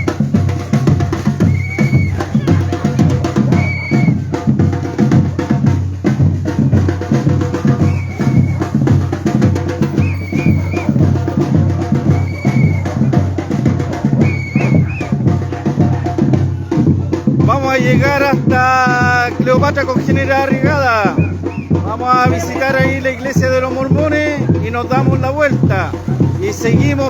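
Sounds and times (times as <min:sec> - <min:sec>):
samba drum group playing: 0:00.0 - 0:27.0.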